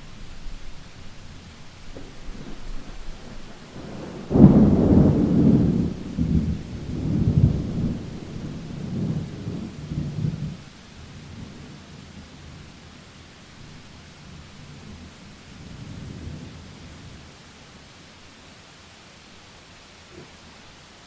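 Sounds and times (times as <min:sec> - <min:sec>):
steady rain: 0:00.0 - 0:21.0
thunderclap rumbling: 0:00.1 - 0:10.6.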